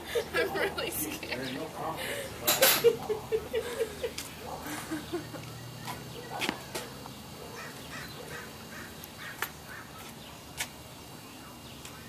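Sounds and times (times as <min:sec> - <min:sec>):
bird calling: 0:03.7 - 0:10.4.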